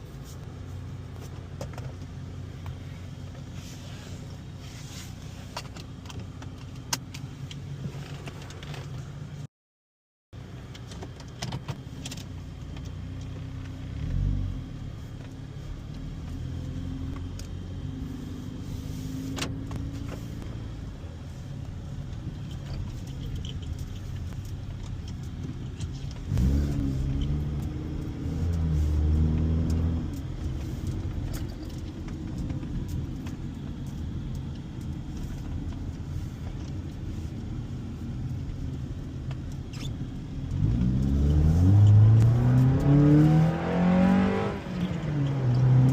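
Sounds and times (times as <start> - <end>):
car engine running: 10.4 - 45.9.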